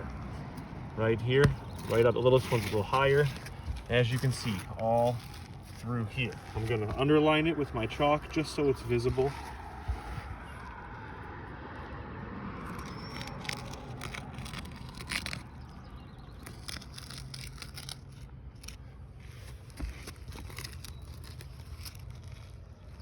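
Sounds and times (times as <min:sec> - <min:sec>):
chalk scraping on shingles: 0:01.4 - 0:10.4.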